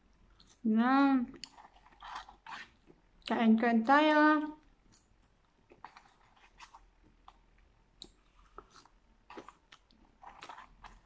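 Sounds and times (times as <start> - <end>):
person chewing fries: 4.8 - 11.0.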